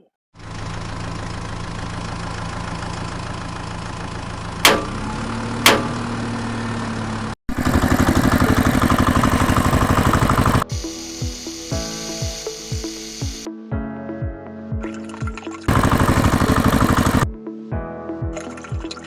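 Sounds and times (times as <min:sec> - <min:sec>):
engine chugging: 0:00.4 - 0:10.6, 0:15.7 - 0:17.2
tractor engine idling: 0:00.4 - 0:10.6, 0:15.7 - 0:17.2
sharp clicks: 0:05.7 - 0:06.0.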